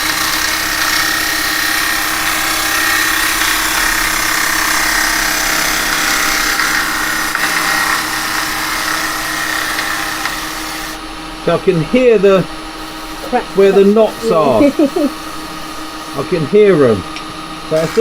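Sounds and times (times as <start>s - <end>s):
gouge cutting spinning wood: 0.0s - 18.0s
lathe motor hum: 0.0s - 18.0s.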